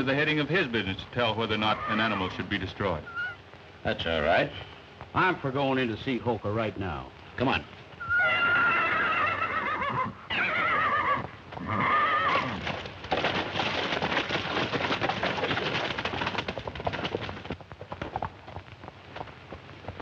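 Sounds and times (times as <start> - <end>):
galloping hooves clattering: 0.0 - 20.0
horse whinnying: 1.6 - 3.4, 8.0 - 12.9.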